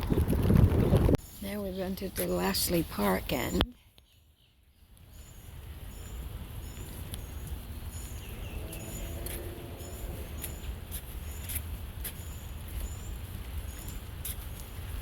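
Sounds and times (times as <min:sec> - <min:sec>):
wind rumbling on microphone: 0:00.0 - 0:02.1, 0:05.1 - 0:15.0
faint high chirp: 0:03.4 - 0:14.0
low hum: 0:06.6 - 0:10.9.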